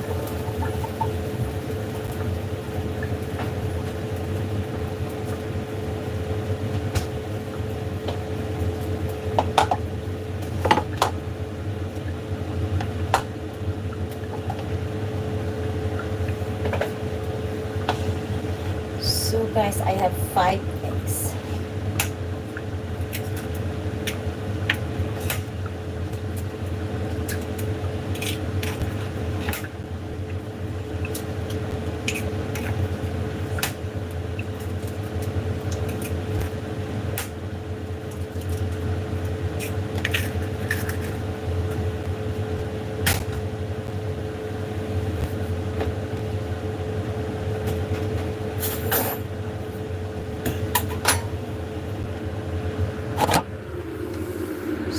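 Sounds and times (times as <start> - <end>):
kitchen appliance motor hum: 0.0 - 3.9.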